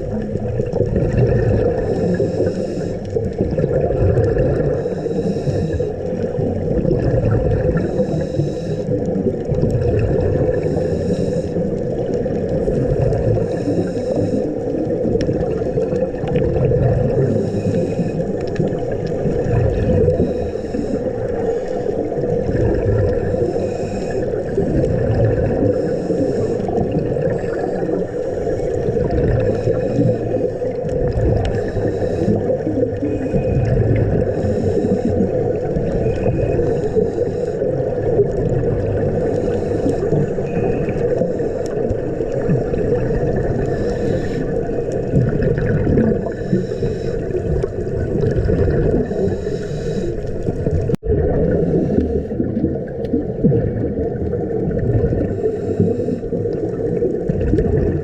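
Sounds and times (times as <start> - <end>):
bubbles gurgling: 0.0 - 58.0
underwater rumble: 0.0 - 58.0
diver regulator breathing hiss: 1.6 - 3.3, 4.6 - 6.3, 7.6 - 9.2, 10.4 - 12.4, 13.3 - 16.1, 17.0 - 19.3, 19.9 - 24.9, 25.5 - 45.2, 46.1 - 50.6, 51.6 - 52.5, 55.2 - 56.8.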